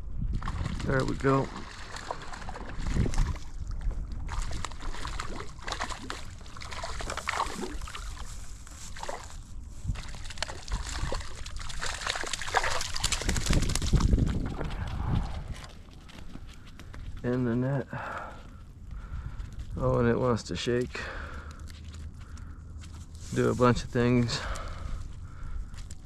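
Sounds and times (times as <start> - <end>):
water splashing and sloshing: 0.2 - 17.1
fish thrashing in water: 0.3 - 16.8.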